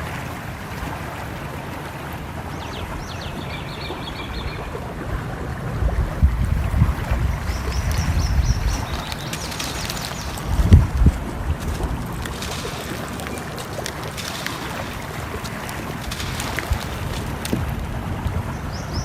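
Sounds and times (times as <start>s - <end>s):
flowing water rushing: 0.0s - 19.0s
songbirds chirping in trills: 1.6s - 5.7s, 6.3s - 19.0s.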